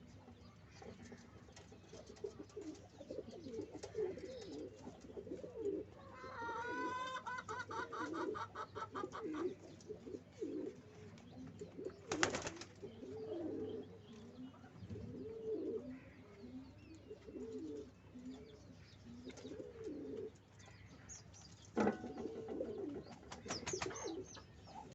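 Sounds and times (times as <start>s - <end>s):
pigeons cooing: 0.0s - 20.5s, 21.8s - 24.9s
rapidly pulsing bird call: 11.9s - 14.0s, 22.9s - 24.9s.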